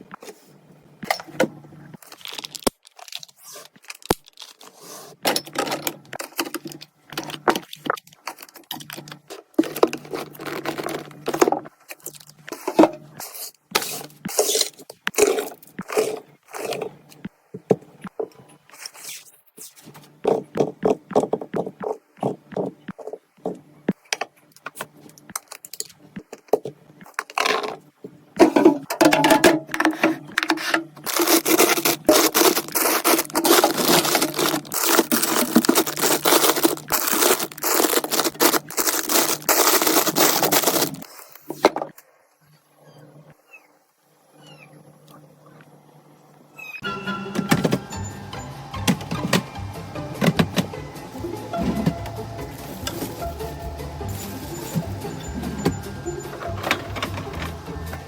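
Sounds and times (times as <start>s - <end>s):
plastic packaging rustling: 1.9s - 16.8s, 29.1s - 41.6s
containers clicking and knocking: 28.4s - 41.1s.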